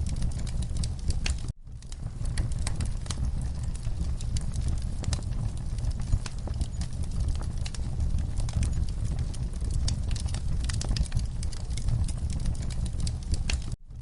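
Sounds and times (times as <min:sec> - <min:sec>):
low rumble of flames: 0:00.0 - 0:14.0
wood fire crackling: 0:00.0 - 0:14.0.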